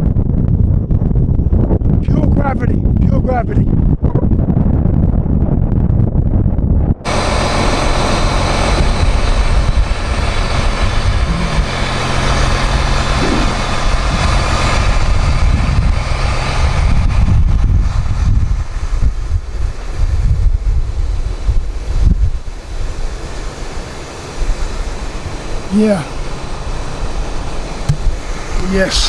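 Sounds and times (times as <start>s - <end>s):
truck engine idling: 7.1s - 16.8s.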